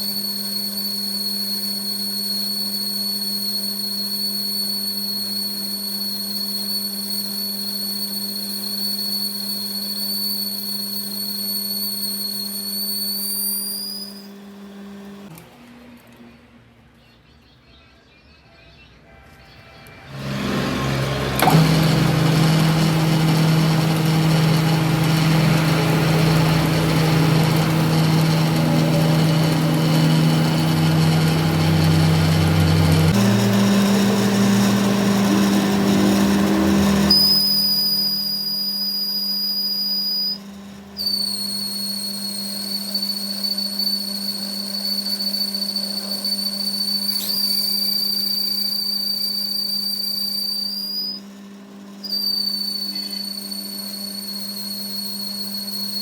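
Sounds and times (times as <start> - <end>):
machine low hum: 19.0 - 56.0
machining noise: 19.1 - 38.6
high-pitched whine: 19.1 - 40.4, 41.0 - 51.2.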